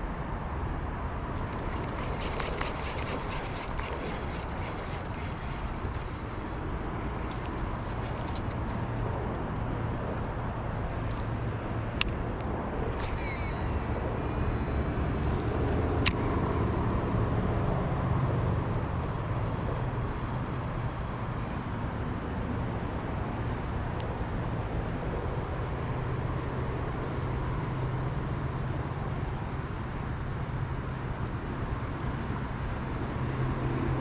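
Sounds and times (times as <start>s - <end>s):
low mechanical rumble: 0.0s - 23.8s.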